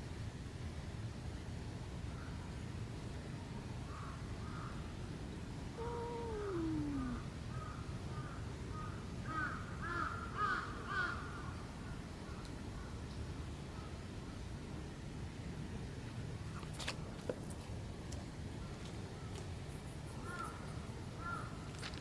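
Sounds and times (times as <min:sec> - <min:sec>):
cat meowing: 0:05.8 - 0:07.2.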